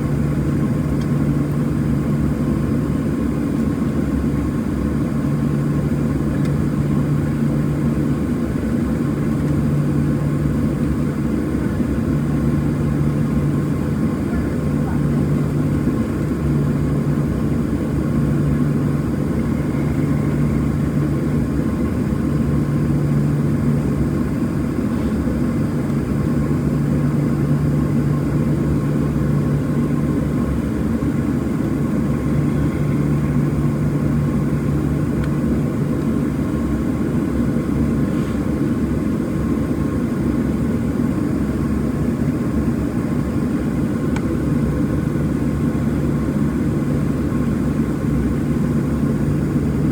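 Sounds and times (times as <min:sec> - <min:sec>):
jet engine and air noise in cabin: 0:00.0 - 0:49.9
low hum: 0:25.9 - 0:36.1.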